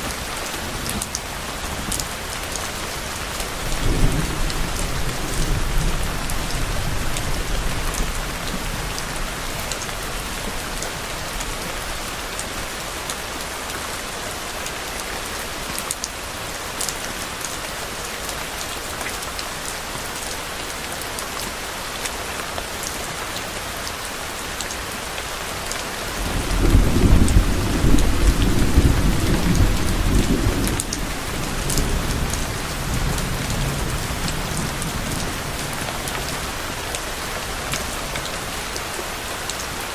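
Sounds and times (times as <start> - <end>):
steady rain falling: 0.0 - 39.9
distant thunder rumbling: 26.2 - 35.8.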